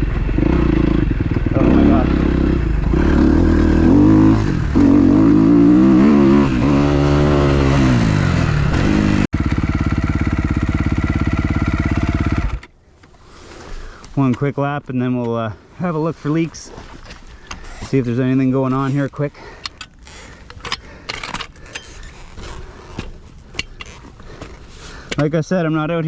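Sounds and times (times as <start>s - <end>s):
motocross engine revving: 0.0s - 12.7s.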